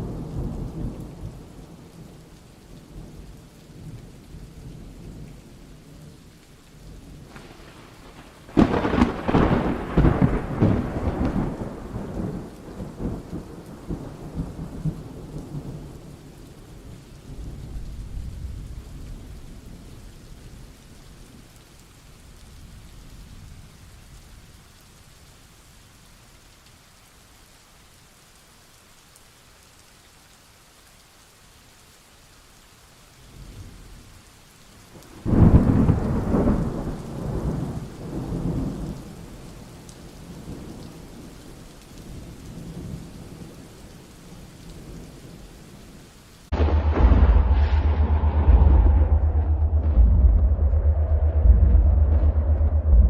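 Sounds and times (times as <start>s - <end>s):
steady rain: 0.0s - 53.0s
thunder clap rumbling: 7.3s - 16.0s, 35.2s - 39.0s, 46.5s - 53.0s.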